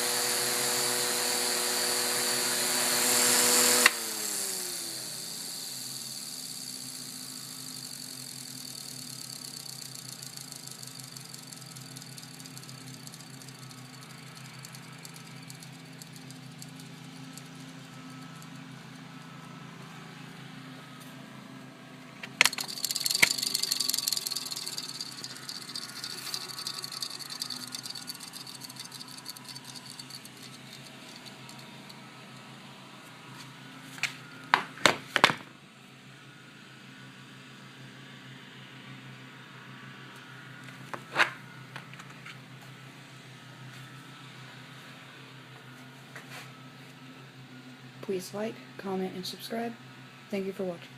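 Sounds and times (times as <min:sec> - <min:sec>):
fan rattling: 0:00.0 - 0:19.4, 0:22.2 - 0:32.5
table fan humming: 0:00.0 - 0:34.7
fan click: 0:22.2 - 0:32.0.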